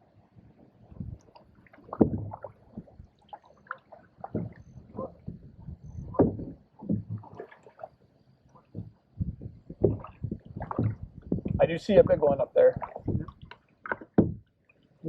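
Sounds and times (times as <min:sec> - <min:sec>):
paddle splashing in water: 0:01.0 - 0:14.4
paddle knocking against hull: 0:01.8 - 0:03.1, 0:03.8 - 0:07.8, 0:08.6 - 0:14.5.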